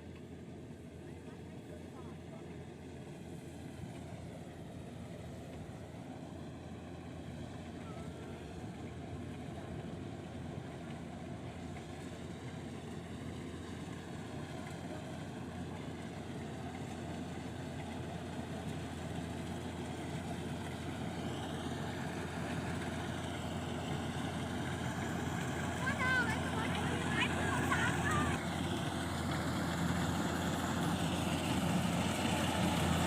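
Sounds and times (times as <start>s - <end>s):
combine harvester engine droning: 0.0s - 33.0s.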